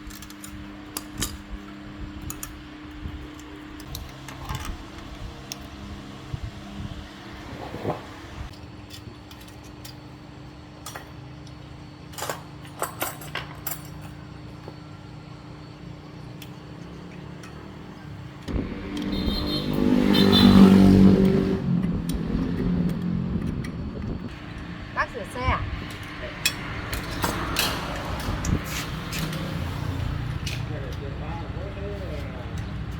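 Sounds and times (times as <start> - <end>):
motor vehicle passing: 5.3 - 8.5, 18.5 - 32.9
steady hum: 14.8 - 32.9.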